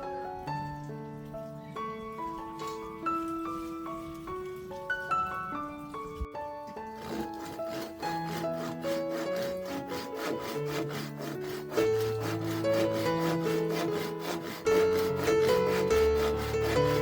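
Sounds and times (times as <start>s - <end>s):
background music with held notes: 0.0s - 17.0s
hand saw cutting wood: 6.7s - 17.0s.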